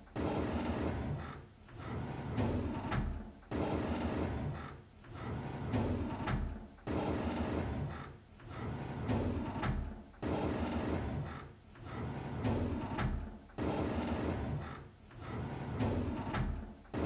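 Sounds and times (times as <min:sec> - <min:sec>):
drawer sliding open: 0:10.4 - 0:17.0.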